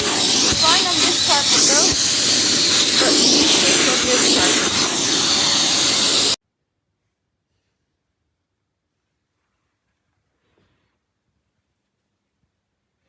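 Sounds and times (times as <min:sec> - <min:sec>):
vacuum cleaner suction whoosh: 0:00.0 - 0:06.4.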